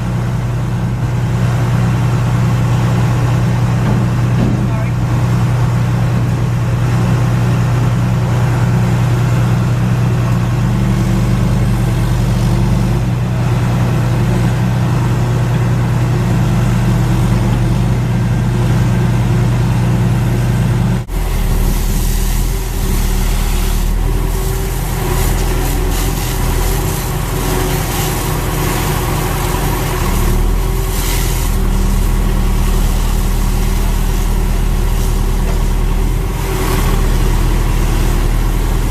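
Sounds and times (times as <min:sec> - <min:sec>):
diesel engines idling: 0:00.0 - 0:38.9
hiss: 0:21.2 - 0:28.5.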